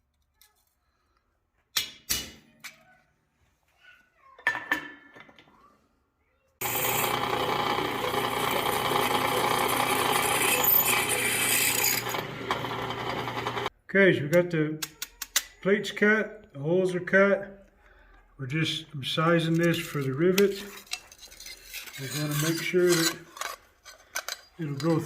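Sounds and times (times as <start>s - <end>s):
power tool running on metal: 6.6s - 13.7s.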